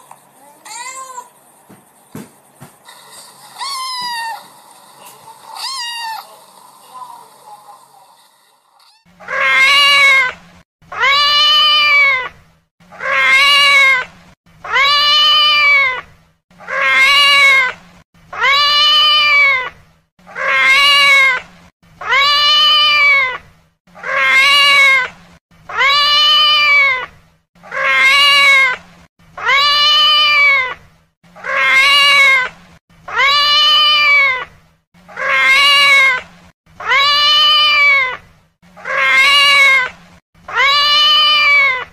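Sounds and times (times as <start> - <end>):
cat meowing: 3.6 - 4.5, 5.6 - 6.3, 8.8 - 12.3, 13.0 - 16.1, 16.7 - 17.7, 18.4 - 19.7, 22.0 - 23.4, 24.0 - 25.1, 25.7 - 27.1, 27.7 - 28.8, 29.4 - 30.8, 31.4 - 32.5, 33.1 - 34.5, 35.2 - 36.2, 36.8 - 38.2, 38.8 - 39.9, 40.5 - 41.9.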